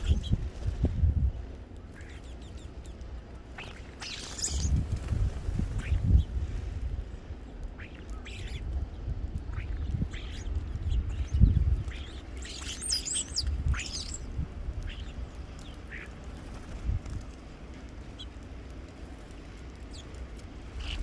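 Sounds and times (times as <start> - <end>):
small birds chirping: 0.0 - 21.0
bird warbling call: 1.9 - 4.8, 7.7 - 16.2, 20.7 - 21.0.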